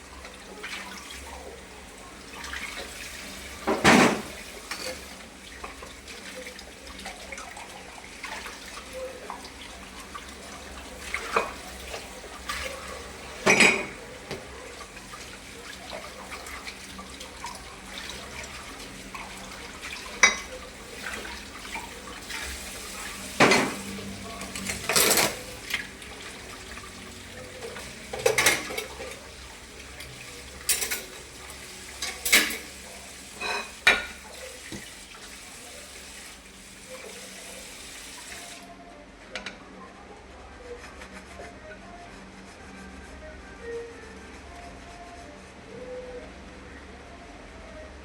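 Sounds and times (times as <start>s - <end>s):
running water: 0.0s - 38.7s
dishes clinking in a sink: 3.6s - 7.6s, 11.0s - 14.5s, 15.7s - 22.4s, 23.4s - 25.9s, 27.5s - 29.3s, 30.0s - 35.0s.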